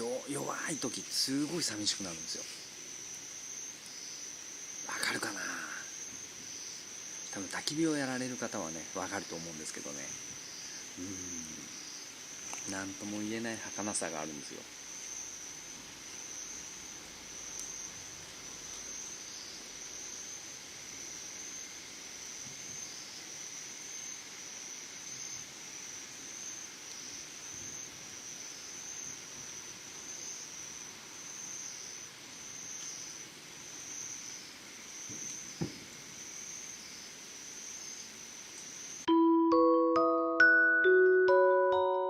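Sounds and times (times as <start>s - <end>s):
insects trilling: 0.0s - 39.2s
lower insect trill: 0.0s - 39.3s.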